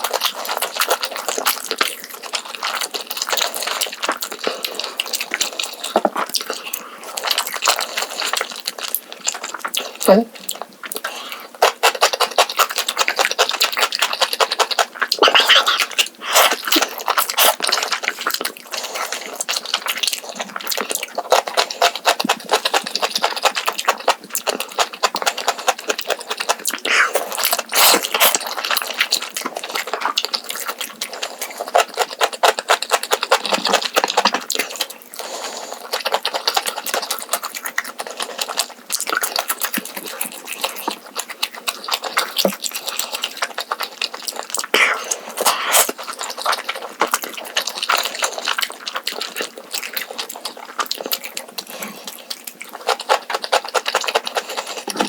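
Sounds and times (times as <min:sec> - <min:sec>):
wet chewing and slurping: 0:00.0 - 0:55.0
mouth clicks: 0:26.8 - 0:28.1, 0:44.7 - 0:45.9.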